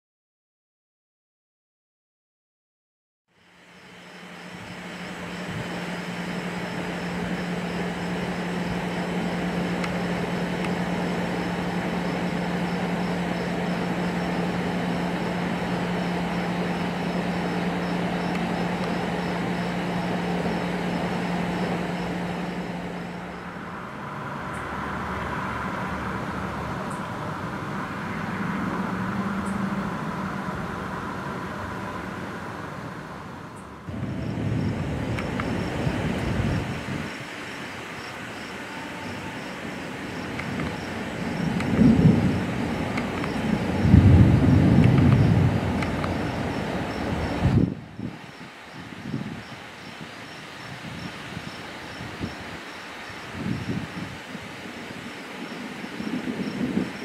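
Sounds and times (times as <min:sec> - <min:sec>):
heavy rain: 0:03.5 - 0:57.0
low hum: 0:39.4 - 0:48.1.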